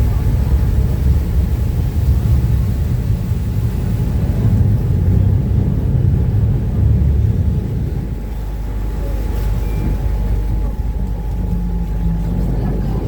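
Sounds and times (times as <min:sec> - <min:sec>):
boat engine and water rumble: 0:00.0 - 0:13.0.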